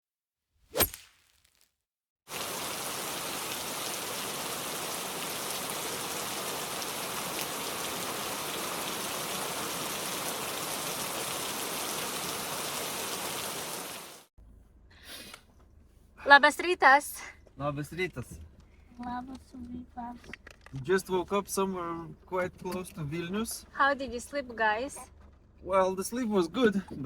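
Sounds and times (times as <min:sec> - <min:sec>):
steady rain falling: 0:02.3 - 0:14.3.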